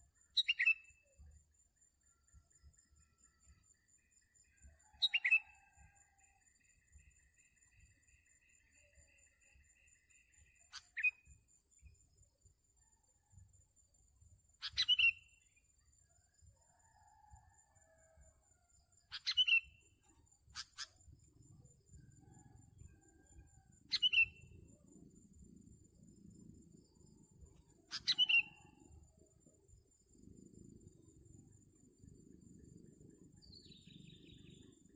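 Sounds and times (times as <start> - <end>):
bulbul calls: 27.9 - 28.7.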